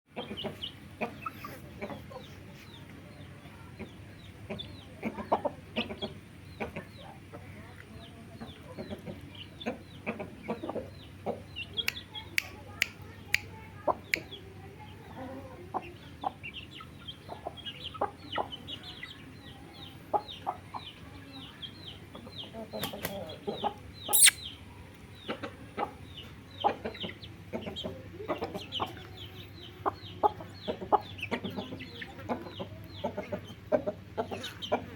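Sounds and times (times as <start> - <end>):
chicks cheeping: 0.1 - 34.9
sharp clicks: 24.2 - 24.4.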